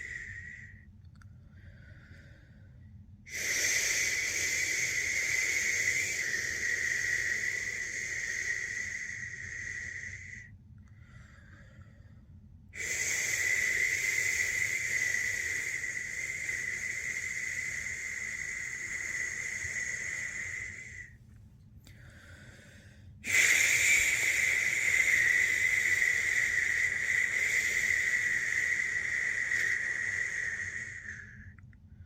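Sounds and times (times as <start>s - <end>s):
person shushing: 3.3s - 10.4s, 12.8s - 21.1s, 23.3s - 31.4s.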